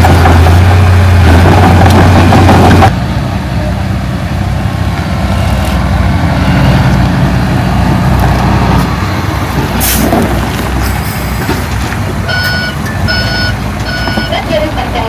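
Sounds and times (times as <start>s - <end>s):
diesel machine engine drone: 0.0s - 15.0s.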